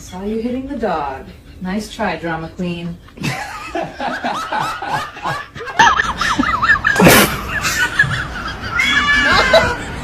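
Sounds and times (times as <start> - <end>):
person laughing in snickers: 3.2 - 10.0.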